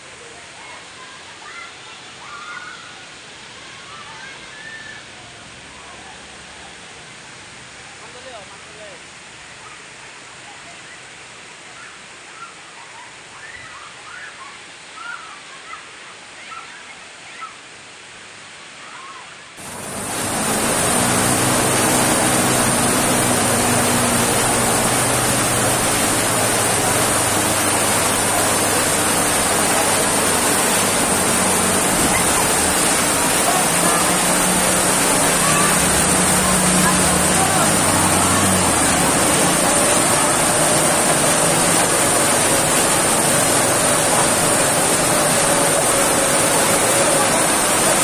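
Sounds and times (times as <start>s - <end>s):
rushing floodwater: 0.0s - 48.0s
heavy rain pouring: 19.6s - 48.0s.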